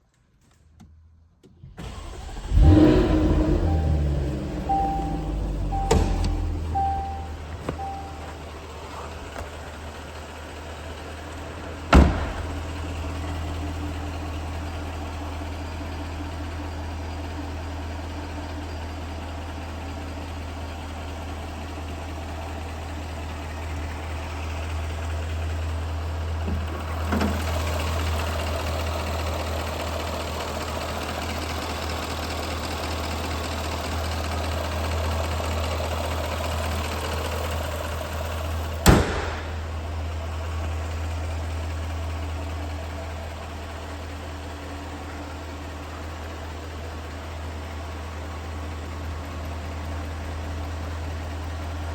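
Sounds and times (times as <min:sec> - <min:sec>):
car engine starting and idling: 0:00.5 - 0:51.9
sharp thump: 0:05.8 - 0:06.7, 0:11.9 - 0:12.7, 0:38.8 - 0:39.9.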